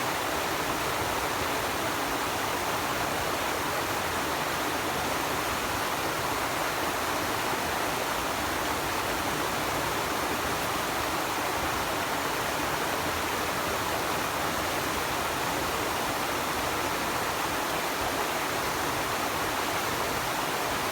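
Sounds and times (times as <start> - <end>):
stream water rushing: 0.0 - 20.9.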